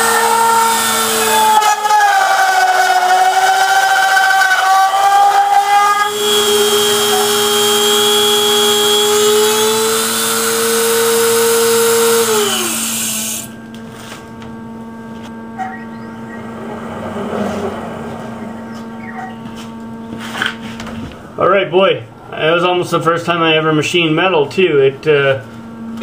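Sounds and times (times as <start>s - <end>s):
router spindle high-pitched whine: 0.0s - 20.1s
steady hum: 0.0s - 26.0s.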